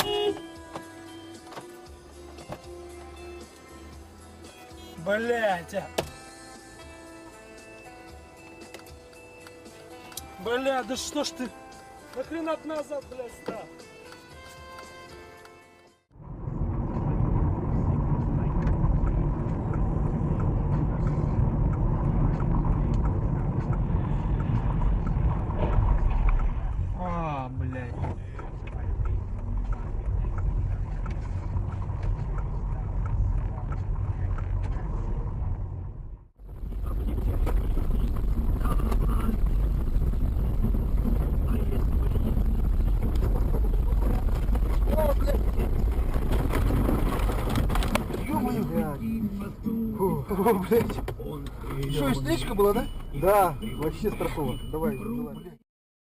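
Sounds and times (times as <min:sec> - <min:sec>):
car road and engine rumble: 0:00.0 - 0:55.6
wind noise: 0:16.2 - 0:27.2, 0:27.8 - 0:49.6.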